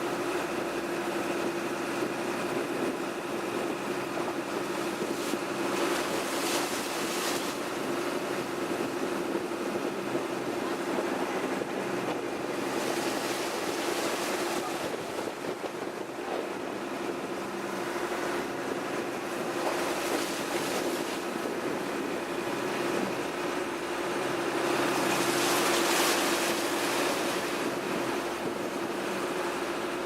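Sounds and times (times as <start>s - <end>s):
boat engine drone: 0.0s - 30.0s
water splashing along hull: 0.0s - 30.0s.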